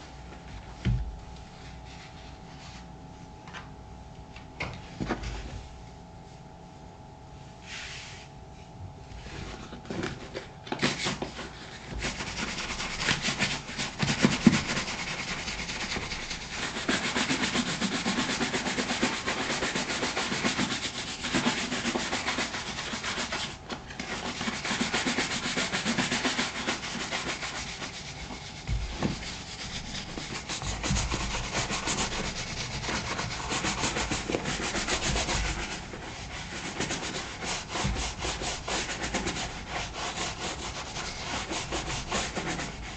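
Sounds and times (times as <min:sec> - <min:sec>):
shoe brush scrubbing leather: 0:10.8 - 0:42.9.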